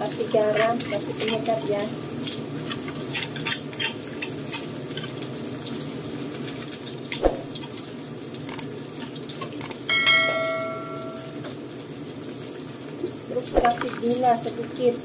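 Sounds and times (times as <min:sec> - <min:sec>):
vegetables sizzling in wok: 0:00.0 - 0:15.0
spatula scrapes and clicks: 0:00.2 - 0:01.7, 0:02.3 - 0:05.2
bright bell chime: 0:09.9 - 0:11.4.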